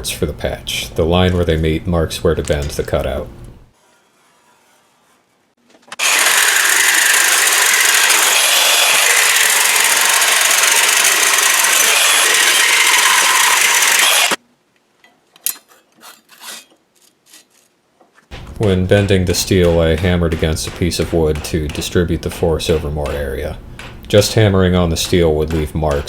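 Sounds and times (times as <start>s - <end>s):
power tool cutting sheet steel: 6.0s - 14.4s.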